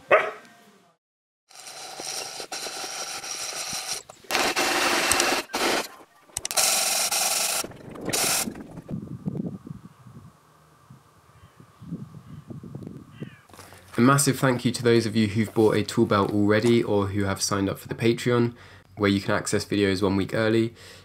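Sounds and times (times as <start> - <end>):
tools rasping timber: 1.5 - 5.8.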